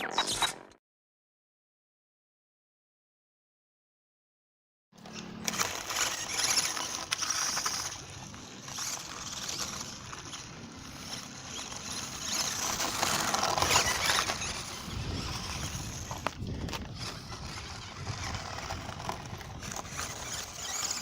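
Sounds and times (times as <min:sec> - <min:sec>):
toy truck driving on ground: 0:05.0 - 0:21.0.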